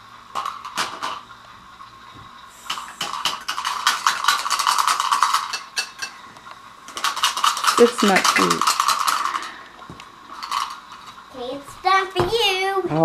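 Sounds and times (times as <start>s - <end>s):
toy pots clattering: 0.3s - 1.2s, 2.7s - 6.2s, 6.9s - 9.6s, 10.3s - 11.2s
pot rattling and scraping: 2.7s - 6.2s, 6.9s - 9.7s, 10.3s - 11.3s.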